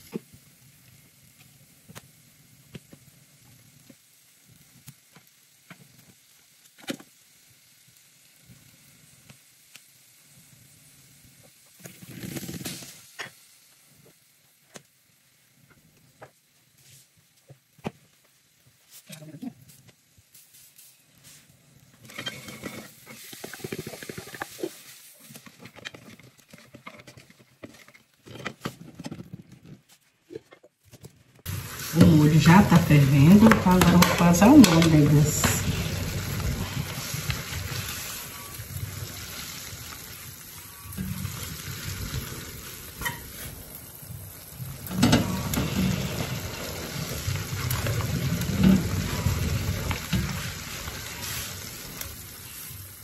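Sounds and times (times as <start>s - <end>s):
sauce bubbling in a pot: 0.0s - 18.9s, 31.4s - 53.0s
faint hiss: 0.0s - 25.8s, 31.5s - 53.0s
food sizzling in a pan: 0.0s - 26.0s, 31.4s - 53.0s.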